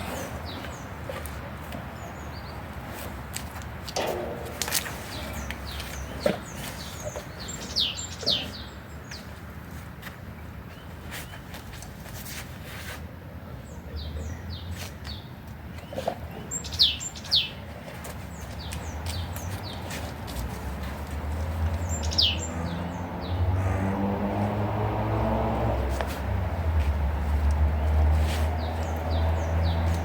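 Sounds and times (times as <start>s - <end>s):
songbird chirps: 0.1s - 9.6s, 13.5s - 23.6s, 26.8s - 30.0s.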